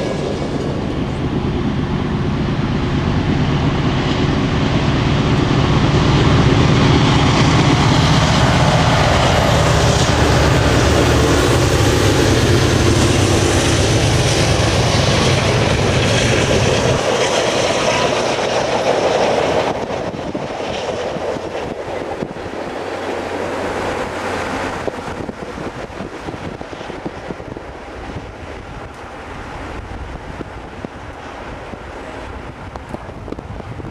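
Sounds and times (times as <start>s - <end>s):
diesel locomotive drone: 0.0s - 33.9s
rumble of rolling train cars: 0.0s - 33.9s.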